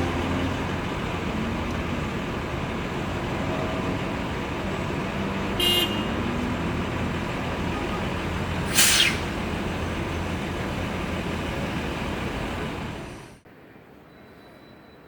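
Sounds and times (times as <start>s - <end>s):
road traffic noise: 0.0s - 15.0s
short loud hiss: 8.7s - 9.4s.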